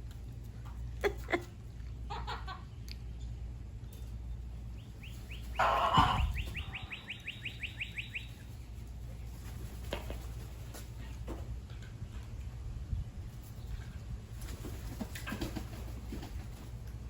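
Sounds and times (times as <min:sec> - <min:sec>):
steady low rumble: 0:00.0 - 0:15.1
bird trilling chirps: 0:04.8 - 0:08.6.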